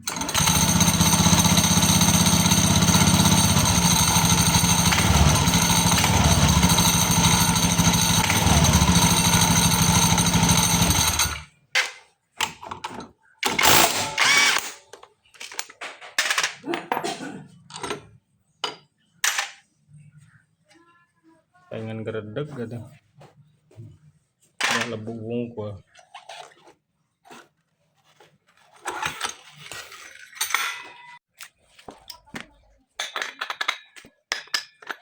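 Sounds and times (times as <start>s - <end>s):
scooter engine rattling: 0.0s - 11.5s.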